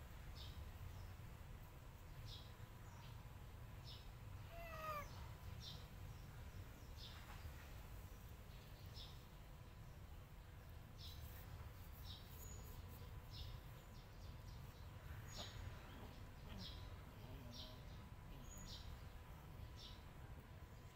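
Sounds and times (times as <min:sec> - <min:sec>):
small bird chirping: 0:03.8 - 0:07.6, 0:11.0 - 0:20.1.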